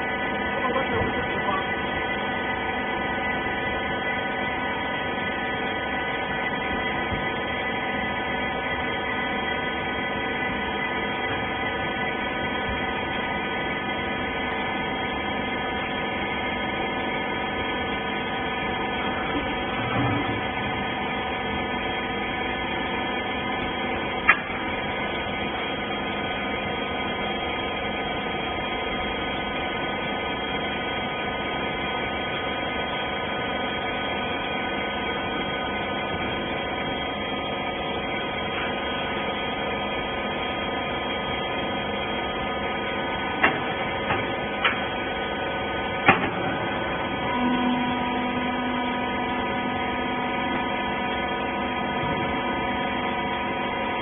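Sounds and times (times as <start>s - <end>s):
baler machine humming: 0.0s - 54.0s
steady tone: 46.8s - 54.0s.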